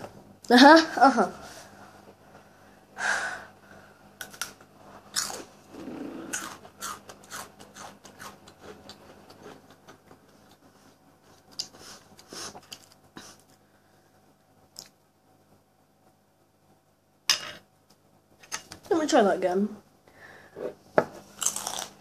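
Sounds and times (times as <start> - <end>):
crunchy breadstick being chewed: 4.2 - 5.6, 6.2 - 10.7, 21.3 - 22.0.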